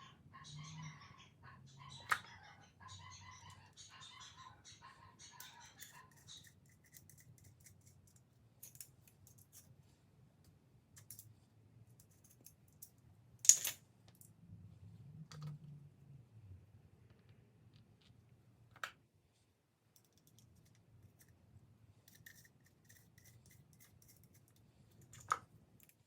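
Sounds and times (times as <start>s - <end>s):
metallic tool clicks and scrapes: 5.8s - 9.7s, 22.1s - 26.0s.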